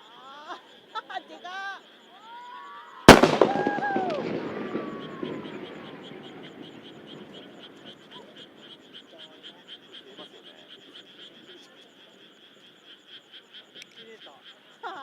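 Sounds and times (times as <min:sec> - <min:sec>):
frogs calling in chorus: 0:00.0 - 0:15.0
low rumble of fireworks: 0:03.1 - 0:11.5.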